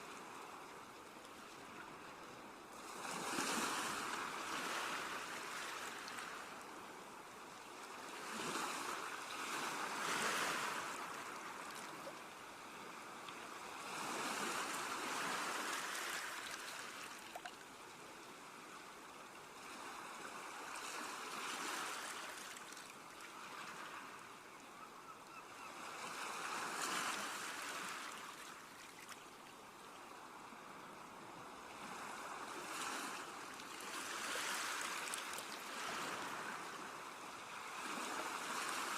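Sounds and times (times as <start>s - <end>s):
sea waves washing onto shore: 7.9s - 17.2s, 31.5s - 38.9s.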